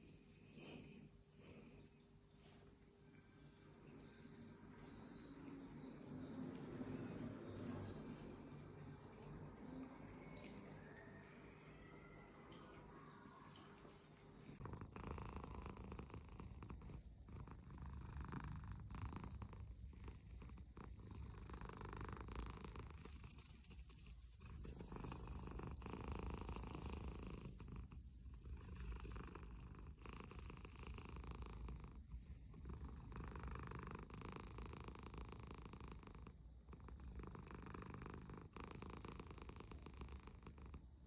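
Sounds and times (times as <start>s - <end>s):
cat purring: 14.6s - 41.0s.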